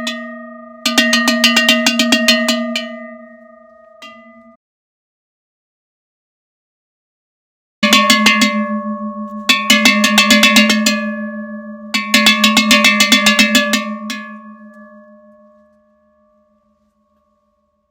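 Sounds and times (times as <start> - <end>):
cowbell shaken: 0.0 - 4.5, 7.8 - 17.5.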